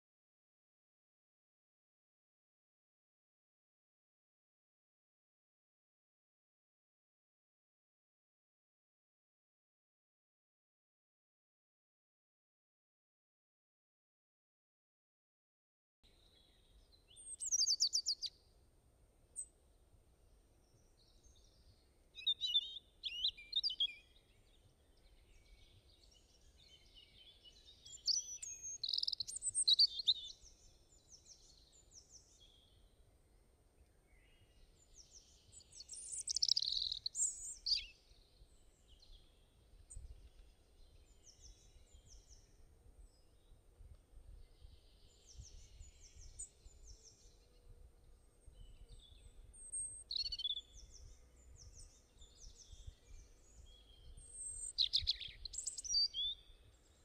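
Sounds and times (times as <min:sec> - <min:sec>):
small birds chirping: 0:16.2 - 0:18.4, 0:20.6 - 0:57.0.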